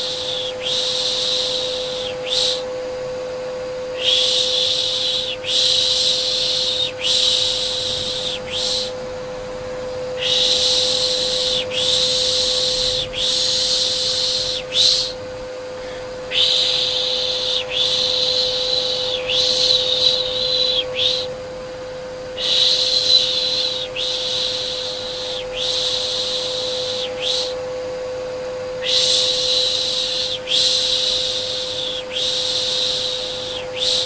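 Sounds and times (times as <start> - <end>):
vacuum cleaner motor hum: 0.0 - 34.0
shushing sounds: 3.9 - 21.4.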